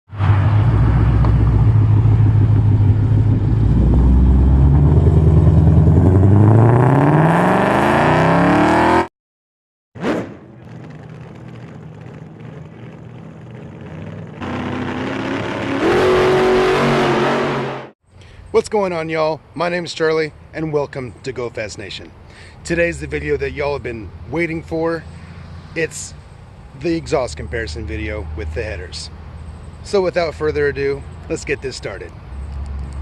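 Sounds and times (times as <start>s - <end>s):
car engine revving and accelerating: 0.2s - 9.1s, 10.0s - 17.9s.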